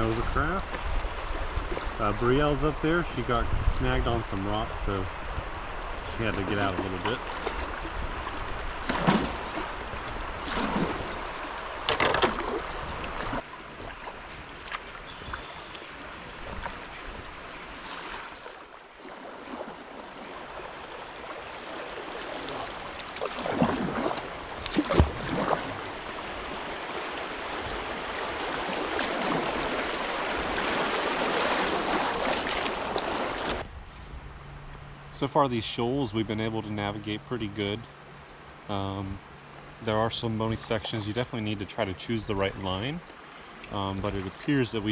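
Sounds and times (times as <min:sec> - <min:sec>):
sharp splashes or knocks: 0:06.2 - 0:17.2, 0:17.8 - 0:25.9
river water rushing over rocks: 0:15.8 - 0:33.6.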